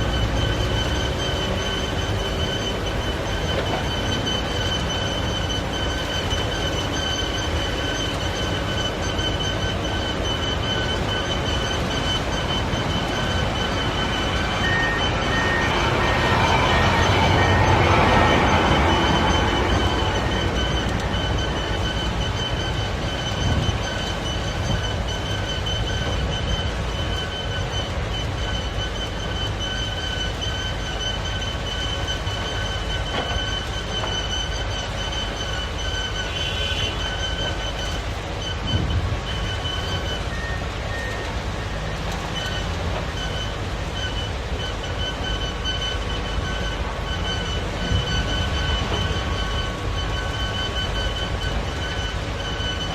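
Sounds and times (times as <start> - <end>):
high-pitched squeal: 0.0 - 52.9
wheel loader engine rumbling: 0.0 - 52.9.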